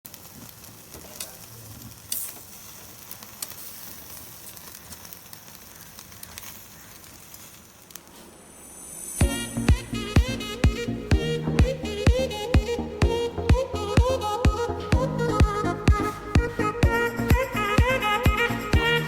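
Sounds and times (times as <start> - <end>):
fat popping and crackling: 0.1 - 8.1
chicken sizzling on a grill: 0.1 - 9.2.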